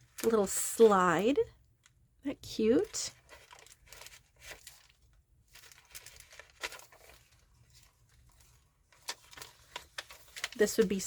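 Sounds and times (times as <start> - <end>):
paper rustling and crinkling: 2.7 - 11.0.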